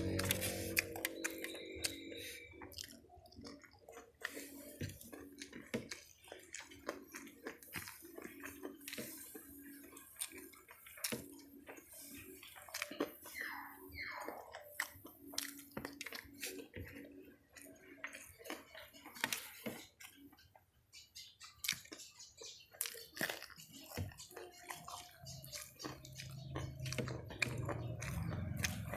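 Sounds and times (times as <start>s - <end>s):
faint low hum: 0.0s - 20.6s
wet chewing and lip smacking: 0.0s - 28.9s.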